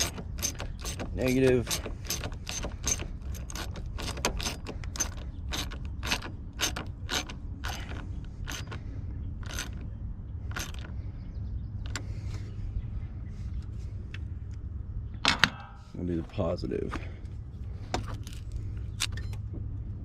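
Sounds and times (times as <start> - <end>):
ratchet clicking: 0.0 - 8.8, 9.4 - 9.8, 10.5 - 10.9.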